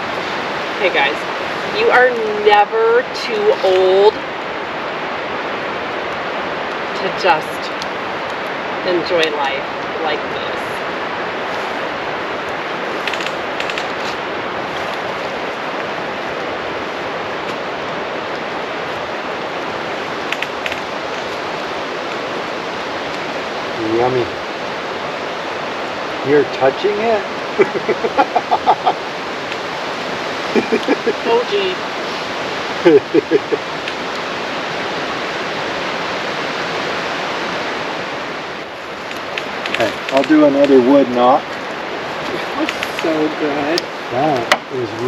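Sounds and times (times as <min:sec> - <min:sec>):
campfire crackles: 0:00.0 - 0:45.0
creek water running: 0:00.0 - 0:45.0
steady rushing noise: 0:00.0 - 0:45.0
person exclaiming or laughing: 0:27.6 - 0:29.0, 0:30.6 - 0:31.5, 0:32.9 - 0:33.6.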